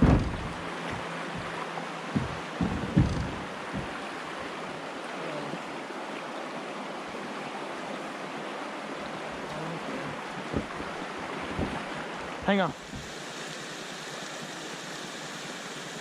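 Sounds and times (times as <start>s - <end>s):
low thump: 0.0s - 4.0s, 10.5s - 11.8s
river water rushing: 0.0s - 16.0s.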